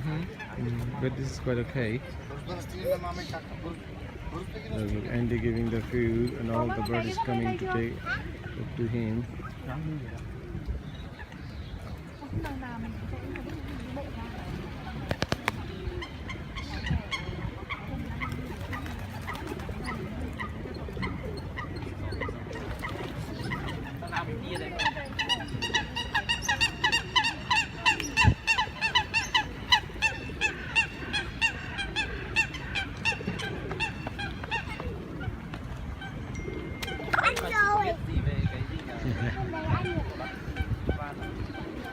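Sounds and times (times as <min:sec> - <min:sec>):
geese honking: 0:23.4 - 0:37.1.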